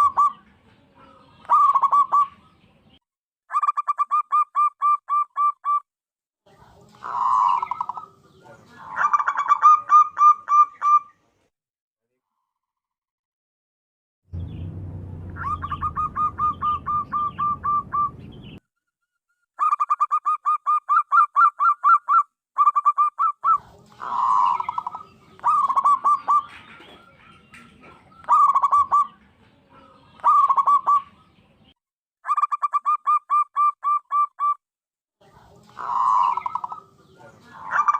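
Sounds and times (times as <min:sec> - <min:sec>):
dove cooing: 0:00.0 - 0:02.5, 0:06.9 - 0:11.1, 0:15.4 - 0:18.2, 0:19.6 - 0:31.2, 0:35.6 - 0:37.9.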